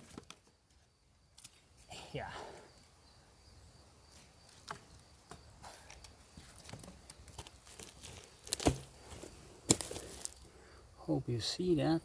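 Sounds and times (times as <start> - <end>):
machete chopping wood: 8.5 - 9.0.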